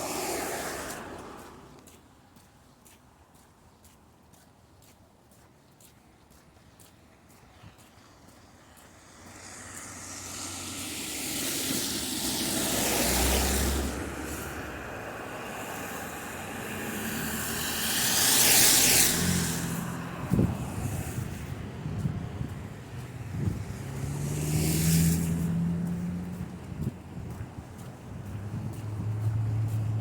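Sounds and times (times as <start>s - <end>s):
vehicles passing with tyre hiss: 0.0s - 3.2s, 5.9s - 30.0s
low engine rumble: 9.0s - 30.0s.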